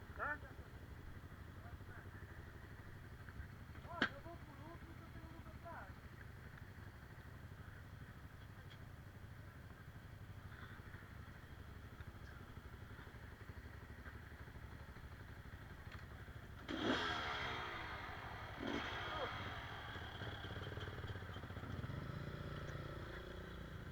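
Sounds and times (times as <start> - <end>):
motorcycle engine revving: 9.8 - 23.9.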